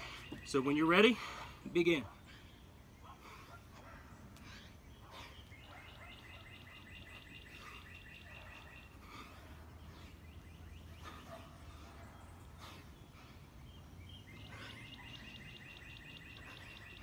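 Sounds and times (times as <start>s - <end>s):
scattered bird chirps: 4.4s - 17.0s.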